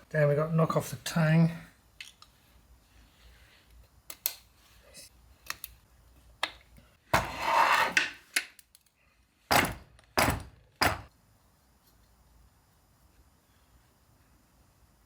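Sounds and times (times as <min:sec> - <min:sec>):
hammer striking a punch: 0:09.5 - 0:11.1.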